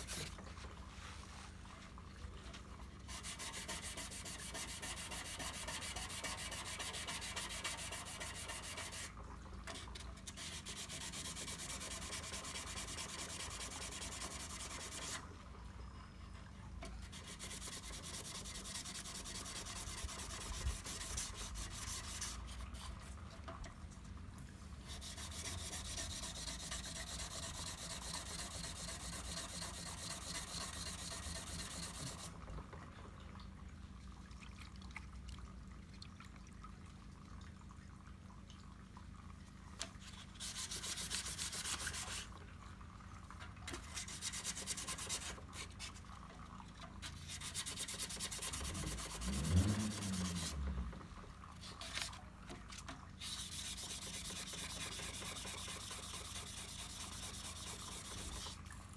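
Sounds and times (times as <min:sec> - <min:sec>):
sandpaper rubbing over filler: 0:00.0 - 0:00.3, 0:03.1 - 0:09.1, 0:10.3 - 0:15.2, 0:17.1 - 0:22.6, 0:24.9 - 0:32.3, 0:40.4 - 0:42.3, 0:44.0 - 0:46.0, 0:47.2 - 0:50.6, 0:53.2 - 0:58.6
low wavering rumble: 0:49.2 - 0:51.4.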